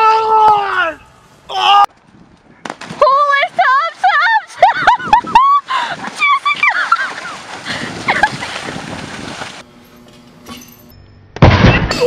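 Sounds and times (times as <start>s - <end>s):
water splashing: 2.7s - 9.6s
loud thud: 11.4s - 12.0s.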